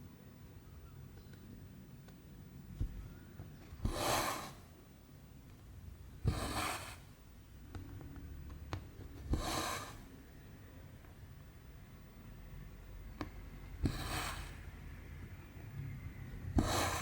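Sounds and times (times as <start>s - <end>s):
thread rasping through canvas: 2.8s - 4.7s, 6.2s - 7.1s, 13.2s - 14.6s, 16.5s - 17.0s.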